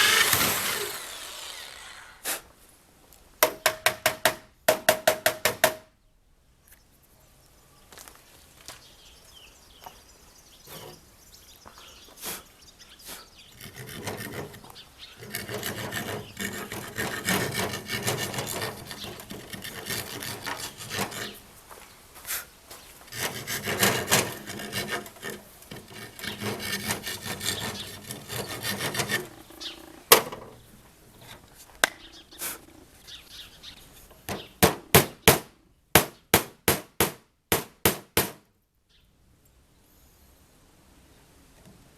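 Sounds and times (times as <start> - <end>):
hand tool rasping on wood: 0.0 - 2.4, 13.6 - 21.4, 23.1 - 29.5.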